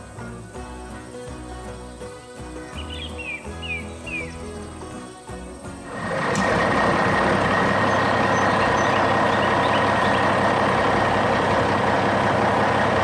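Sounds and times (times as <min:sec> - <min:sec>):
heavy vehicle engine running: 0:05.6 - 0:13.0.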